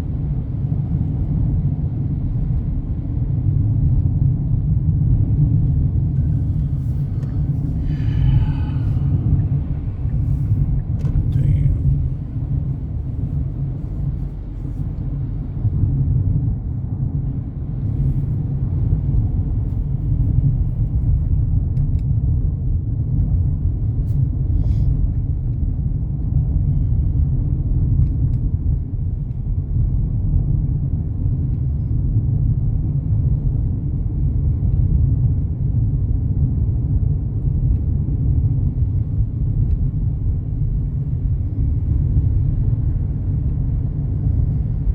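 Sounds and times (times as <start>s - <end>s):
vehicle road rumble: 0.0s - 44.9s.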